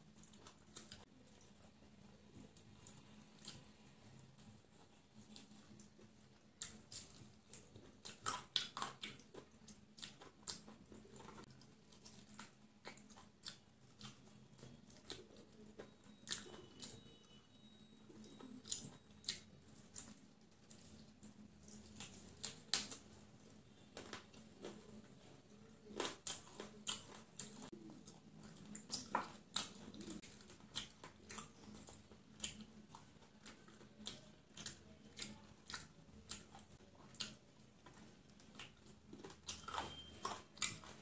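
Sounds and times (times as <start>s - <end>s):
crunching fried chicken: 0.0s - 41.0s.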